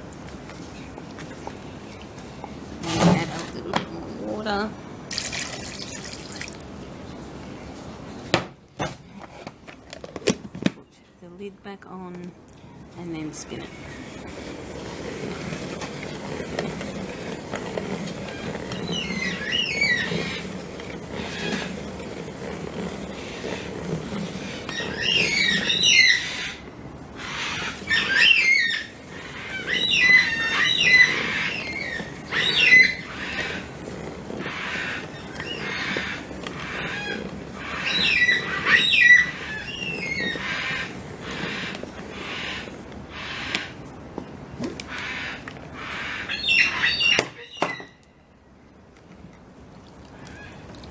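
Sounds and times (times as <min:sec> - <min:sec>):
salad spinner whirring in water: 0:01.6 - 0:06.7, 0:13.2 - 0:43.9
squeaky chirp-like gliding sounds: 0:13.4 - 0:43.8, 0:44.9 - 0:48.2.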